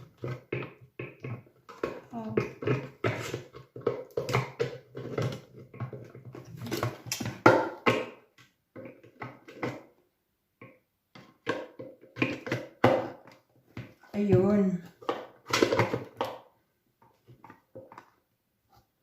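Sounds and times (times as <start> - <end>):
plastic knocks and clicks: 0.0 - 10.0, 10.6 - 18.2.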